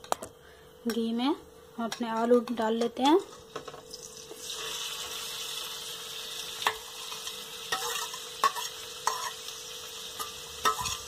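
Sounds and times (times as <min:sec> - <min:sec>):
potatoes sizzling in hot fat: 0:00.8 - 0:11.0
spoon scraping a steel plate: 0:07.7 - 0:09.4, 0:10.2 - 0:11.0.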